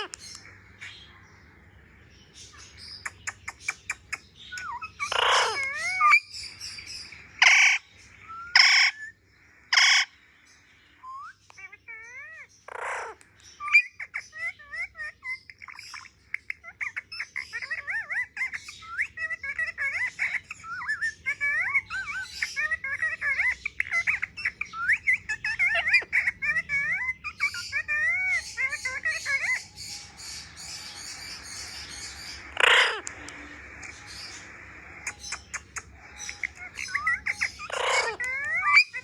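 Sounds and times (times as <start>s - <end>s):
parrot chattering: 2.8s - 6.8s, 7.4s - 7.8s, 8.5s - 9.1s, 9.7s - 10.1s, 11.0s - 39.0s
loud parrot call: 4.6s - 6.8s, 7.4s - 10.2s, 11.0s - 15.3s, 16.6s - 39.0s.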